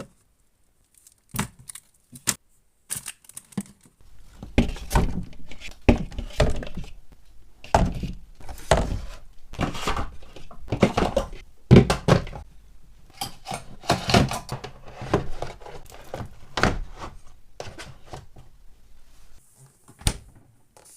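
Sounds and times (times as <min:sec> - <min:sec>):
containers thunking on fridge shelves: 0:07.7 - 0:12.4.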